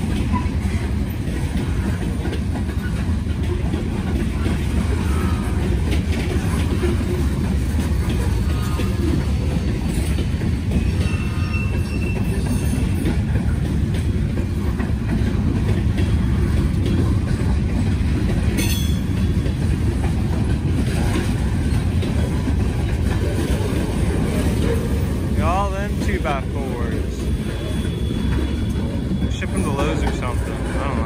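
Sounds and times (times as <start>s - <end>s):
train wheels rumbling over rails: 0.0s - 31.0s
high wheel squeal: 10.7s - 13.2s, 27.2s - 31.0s.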